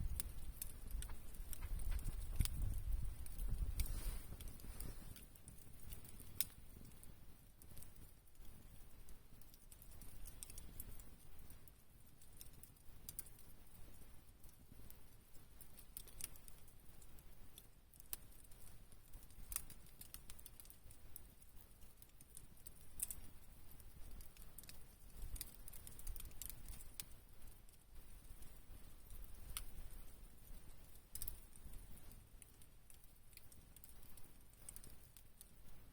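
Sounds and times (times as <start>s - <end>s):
faint low rumble: 0.0s - 5.8s
firewood crackling and popping: 0.0s - 35.9s.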